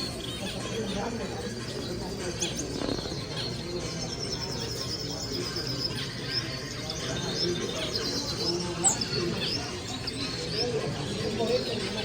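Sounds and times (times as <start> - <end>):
caged birds chirping and twittering: 0.0 - 12.0
low background murmur: 0.0 - 12.0
high repeated bird chirps: 2.4 - 10.5.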